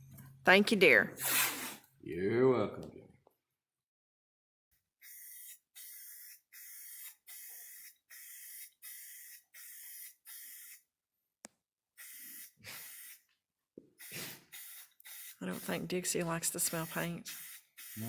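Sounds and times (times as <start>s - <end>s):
spray can spraying bursts: 5.0s - 10.9s, 12.0s - 13.3s, 14.0s - 18.0s.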